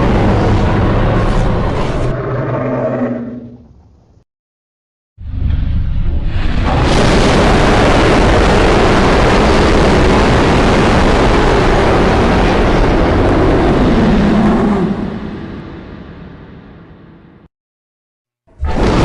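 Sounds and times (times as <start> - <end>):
monster roar: 0.0 - 3.6, 13.1 - 15.3.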